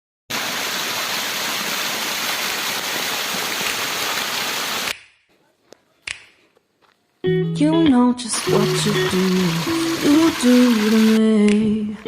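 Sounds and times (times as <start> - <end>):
fast-flowing water rushing: 0.3 - 4.9, 8.4 - 11.2.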